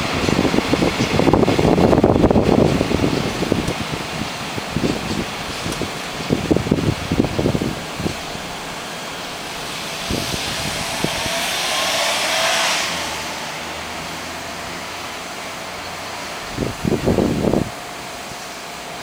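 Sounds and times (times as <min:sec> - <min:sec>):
rushing noise: 0:00.0 - 0:19.0.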